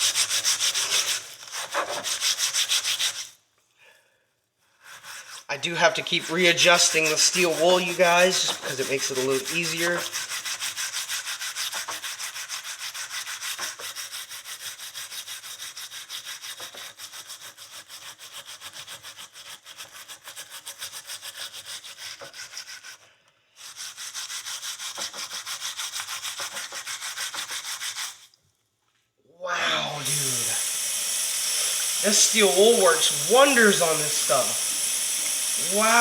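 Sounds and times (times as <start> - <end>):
steel wool scrubbing metal: 4.9 - 17.7, 29.9 - 36.0.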